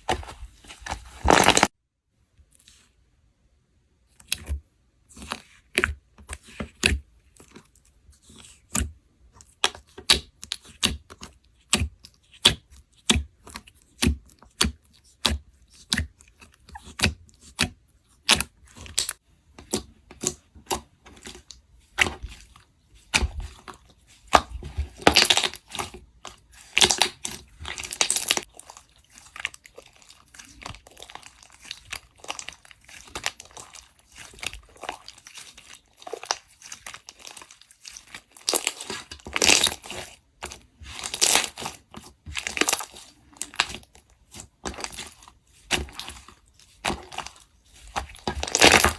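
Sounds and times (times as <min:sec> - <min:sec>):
crunching and crackling: 0:00.0 - 0:01.7, 0:09.4 - 0:48.9
tearing and crumbling: 0:00.0 - 0:01.7, 0:23.2 - 0:48.9.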